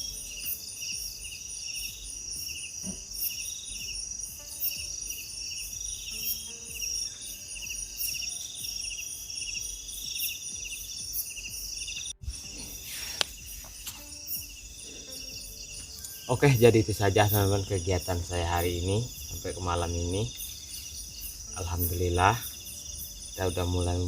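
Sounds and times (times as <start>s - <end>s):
crickets chirping: 0.0s - 24.0s
high-pitched insect drone: 0.0s - 24.0s.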